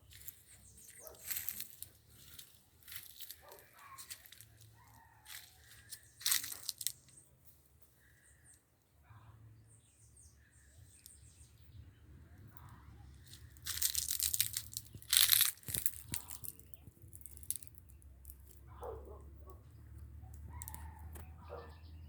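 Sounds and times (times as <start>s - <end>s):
crackling crunching noises: 0.0s - 7.2s, 12.2s - 21.6s.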